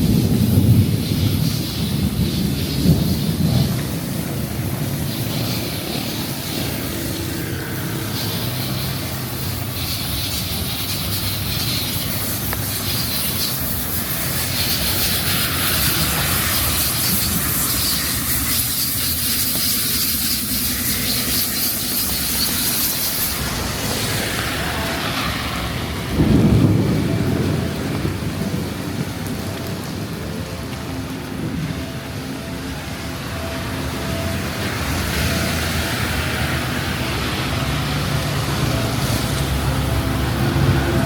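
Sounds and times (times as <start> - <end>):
deep vehicle rumble close by: 0.0 - 41.0
heavy rain hissing: 0.0 - 41.0
traffic on wet road: 0.0 - 41.0.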